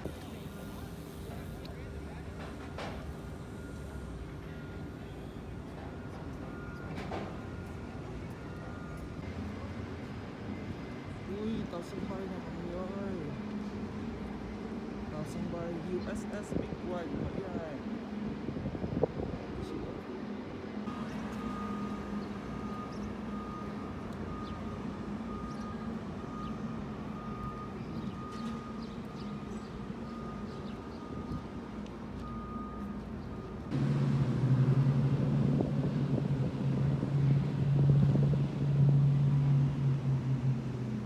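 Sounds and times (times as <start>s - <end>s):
vehicle engines droning: 0.0s - 41.0s
faint high beep: 3.2s - 9.8s, 20.9s - 31.6s, 32.2s - 33.7s
deep loud engine drone: 20.8s - 41.0s.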